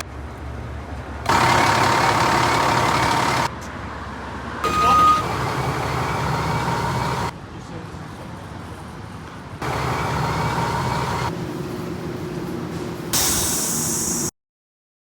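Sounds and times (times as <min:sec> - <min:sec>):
fire truck engines running: 0:00.0 - 0:14.3
air brake hiss: 0:13.1 - 0:14.3.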